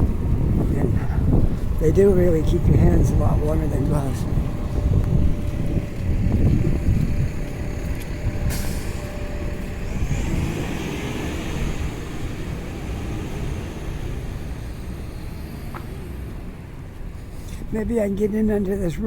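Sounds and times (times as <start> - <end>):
heavy vehicle passing: 0.0 - 17.8
street traffic: 0.0 - 19.0
air brake hiss: 8.5 - 9.0.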